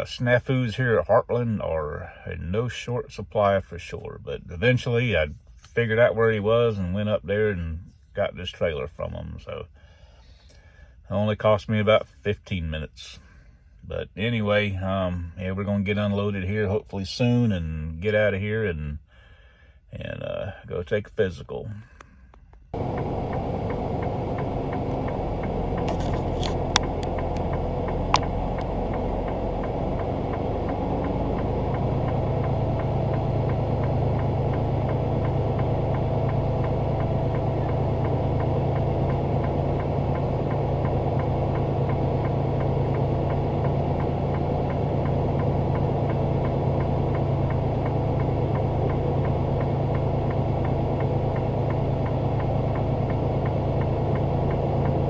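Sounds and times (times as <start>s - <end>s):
sharp clicks: 22.3s - 31.5s
diesel engine running: 22.7s - 55.0s.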